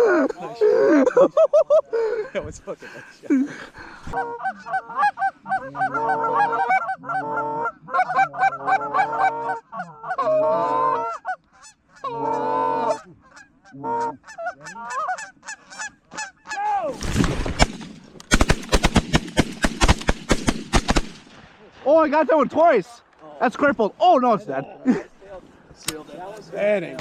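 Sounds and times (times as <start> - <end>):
geese honking: 4.1 - 16.7.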